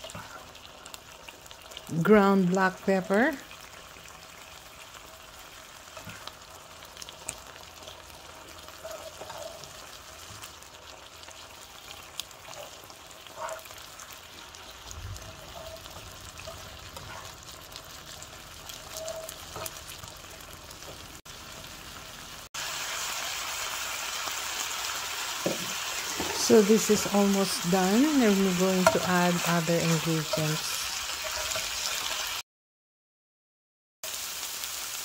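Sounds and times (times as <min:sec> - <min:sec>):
meat sizzling in a skillet: 0:00.0 - 0:32.4, 0:34.0 - 0:35.0
plastic spatula scraping a pan: 0:08.7 - 0:10.5.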